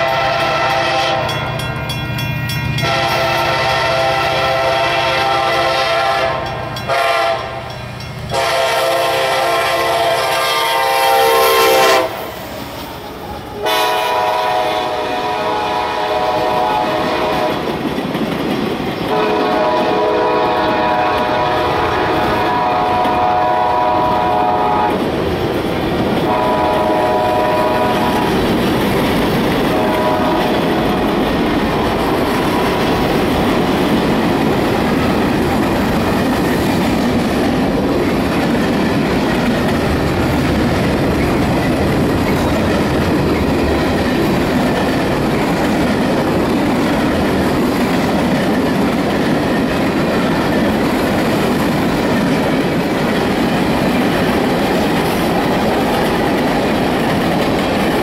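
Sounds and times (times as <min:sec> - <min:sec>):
multi-chime train horn: 0:00.0 - 0:12.2, 0:13.6 - 0:17.6, 0:19.1 - 0:25.0, 0:26.3 - 0:28.3, 0:29.7 - 0:30.9
train wheels rumbling on rails: 0:00.0 - 0:58.0.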